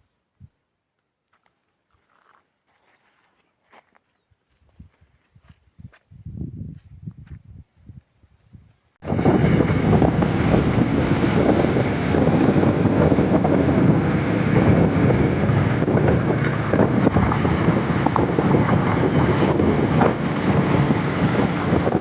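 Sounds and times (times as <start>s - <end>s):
wind rushing over microphone: 4.7s - 22.0s
motorcycle running: 9.0s - 22.0s.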